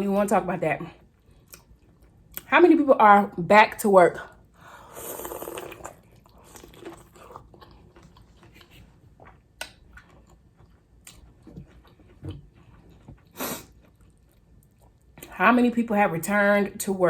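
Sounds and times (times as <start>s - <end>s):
chewing and biting: 5.2s - 15.3s.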